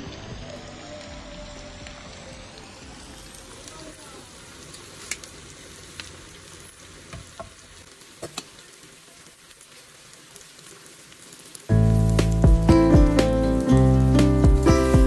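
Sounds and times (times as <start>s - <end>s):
beans sizzling in a pan: 0.0s - 15.0s
loud music: 11.7s - 15.0s.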